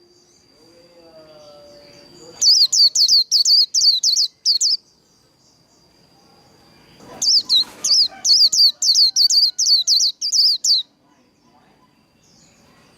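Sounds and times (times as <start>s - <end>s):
bird singing high downward notes: 0.0s - 5.0s, 6.8s - 10.9s.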